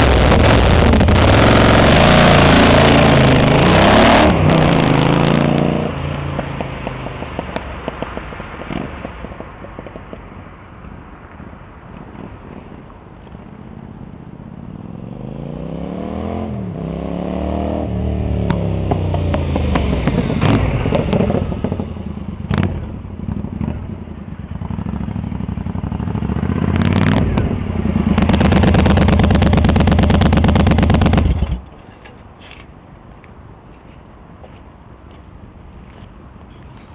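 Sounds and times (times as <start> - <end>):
motorcycle engine revving: 0.0 - 7.2, 14.8 - 31.6.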